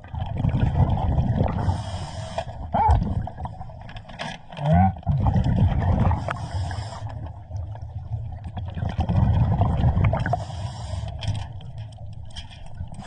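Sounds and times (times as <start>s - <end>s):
exhaled bubbles rumbling: 0.0s - 13.0s
diver breathing through regulator: 1.5s - 2.7s, 6.1s - 7.3s, 10.1s - 11.4s.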